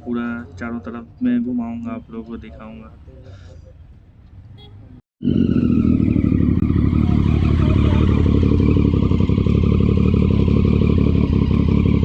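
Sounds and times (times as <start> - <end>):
motorcycle engine running loudly: 5.2 - 12.0.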